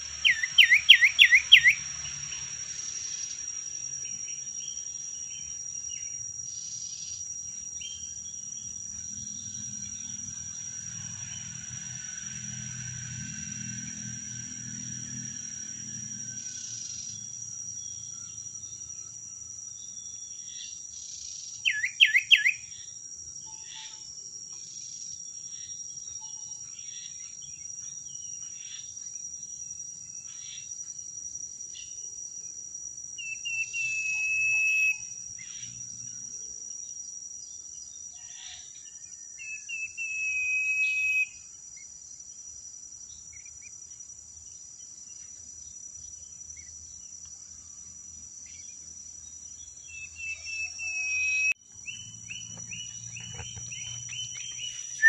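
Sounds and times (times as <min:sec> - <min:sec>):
birds chirping: 0:00.0 - 0:01.8, 0:50.0 - 0:55.0
bird long whistles: 0:00.0 - 0:02.5, 0:21.6 - 0:22.6, 0:33.2 - 0:35.1, 0:39.4 - 0:41.4, 0:49.9 - 0:52.0
high-pitched insect drone: 0:00.0 - 0:21.6, 0:22.3 - 0:55.0.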